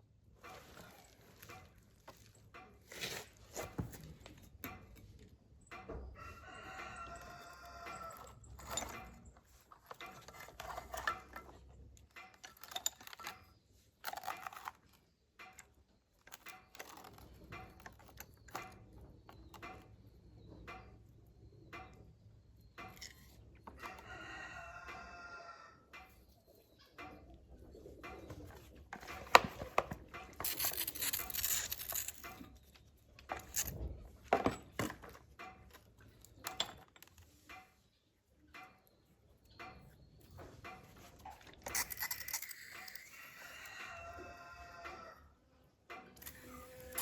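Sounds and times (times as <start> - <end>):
rooster crowing: 6.2 - 8.3, 23.9 - 25.8, 42.9 - 45.3.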